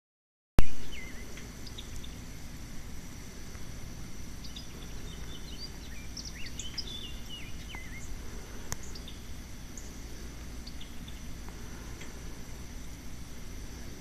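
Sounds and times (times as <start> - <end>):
bird chirping and whistling: 0.6 - 2.2, 4.4 - 8.1
steady low rumble: 0.6 - 14.0.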